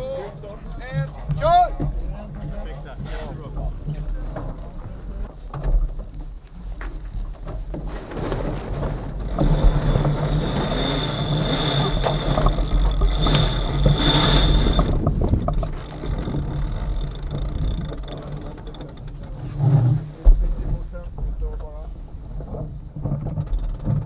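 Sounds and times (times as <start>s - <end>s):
wind buffeting microphone: 7.6s - 24.0s
water rushing along hull: 8.7s - 21.0s.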